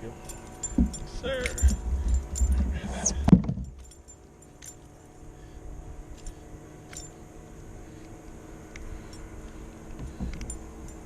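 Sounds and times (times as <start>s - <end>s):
fishing tackle jingling: 0.1s - 5.4s.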